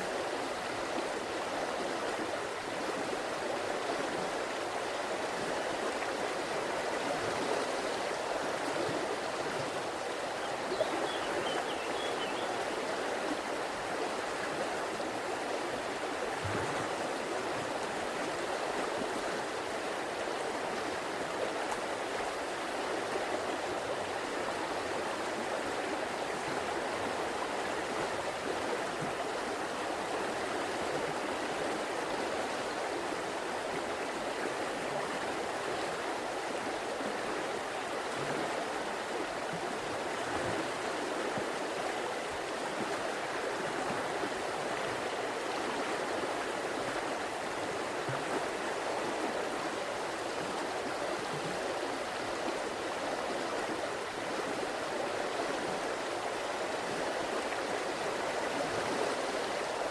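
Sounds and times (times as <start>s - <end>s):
river water flowing over rocks: 0.0s - 59.9s.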